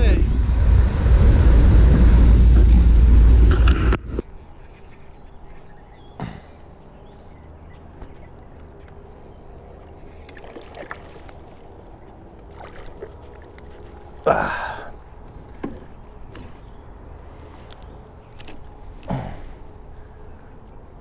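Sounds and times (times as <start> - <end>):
low rumble: 0.0 - 4.2
faint hum: 0.0 - 21.0.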